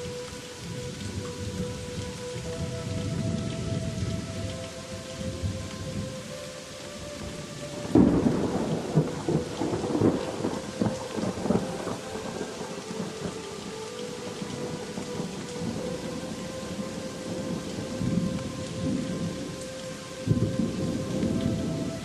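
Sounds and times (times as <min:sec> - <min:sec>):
heavy rain: 0:00.0 - 0:22.0
rolling thunderclap: 0:07.8 - 0:13.0.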